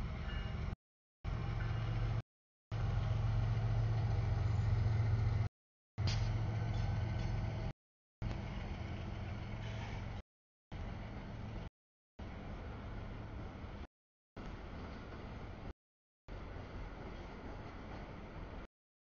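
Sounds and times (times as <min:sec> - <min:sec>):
train wheels rumbling on rail: 0:02.8 - 0:10.2, 0:14.4 - 0:15.7, 0:16.3 - 0:18.7.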